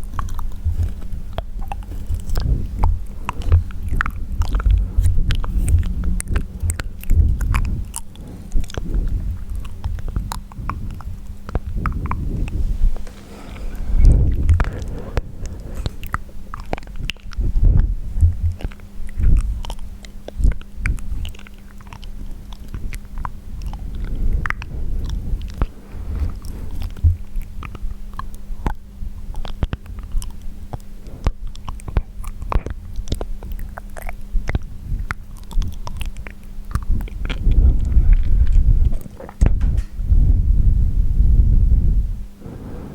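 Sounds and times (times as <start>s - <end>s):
deeper thumps: 0.6s - 18.6s, 37.6s - 42.6s
wet mouth clicks and smacks: 29.4s - 39.8s.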